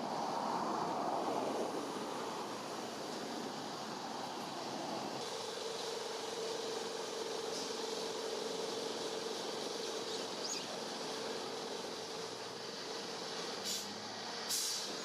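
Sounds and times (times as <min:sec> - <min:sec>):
faint bird chirp: 0:10.1 - 0:10.8
brief hissy bursts: 0:14.5 - 0:15.0.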